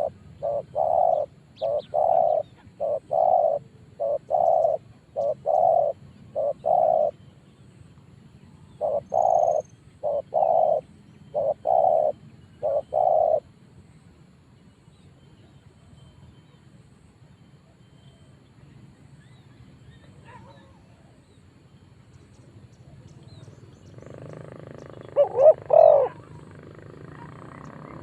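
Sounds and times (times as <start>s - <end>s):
dove cooing: 0.0s - 7.2s, 8.8s - 13.5s, 22.9s - 28.0s.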